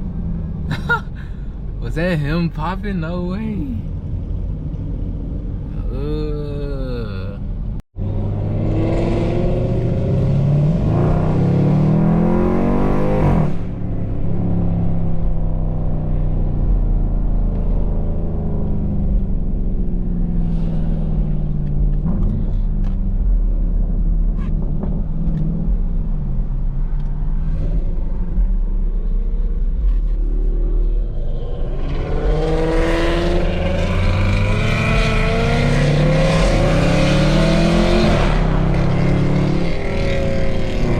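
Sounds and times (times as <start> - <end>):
car engine accelerating: 8.0 - 40.9.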